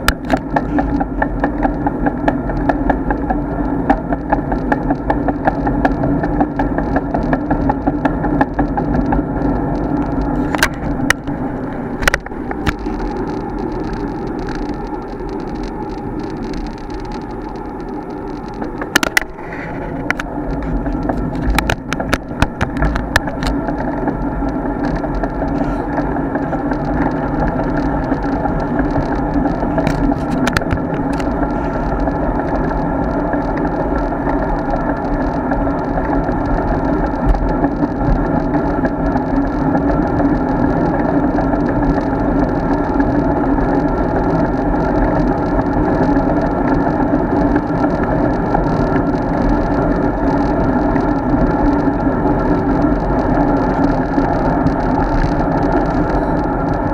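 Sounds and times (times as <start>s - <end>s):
bike rattles and knocks: 0.0s - 15.4s, 16.0s - 41.9s
road bike rumbling: 0.0s - 56.9s.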